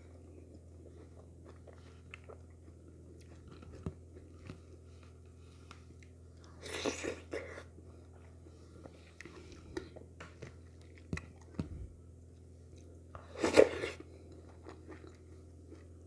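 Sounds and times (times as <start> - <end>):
wet chewing sounds: 0.2 - 11.8, 12.4 - 16.0.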